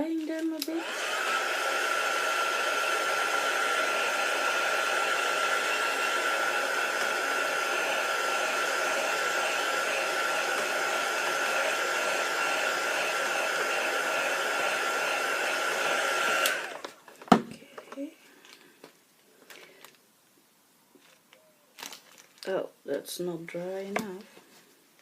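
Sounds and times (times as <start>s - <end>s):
hot-air dryer blowing: 0.6s - 17.0s.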